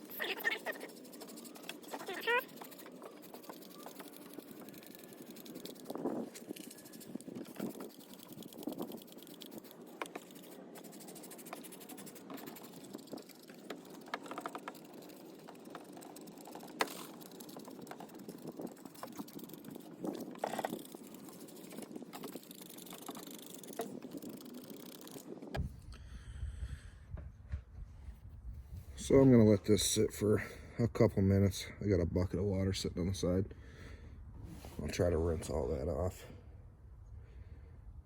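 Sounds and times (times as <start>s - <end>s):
hand sprayer squirting: 0.0s - 25.2s.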